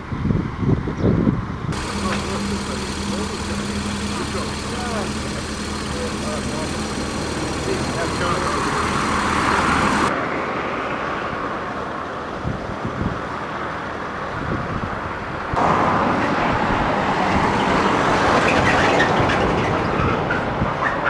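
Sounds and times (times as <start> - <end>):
vehicle engine rumbling: 1.7 - 10.1
road traffic: 1.7 - 11.1, 15.6 - 20.6.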